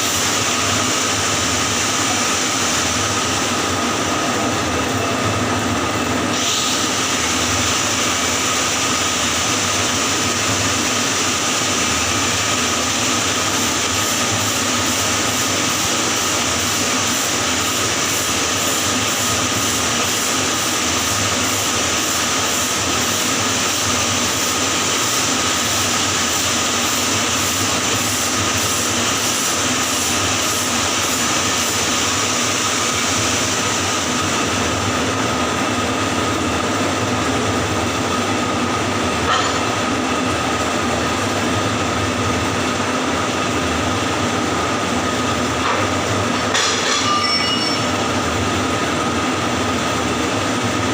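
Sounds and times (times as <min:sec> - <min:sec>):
welding arc crackling hiss: 0:00.0 - 0:05.0, 0:06.1 - 0:36.8.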